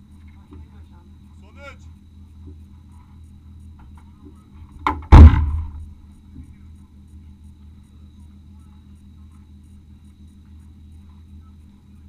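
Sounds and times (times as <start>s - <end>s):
loud thud: 4.8s - 6.0s.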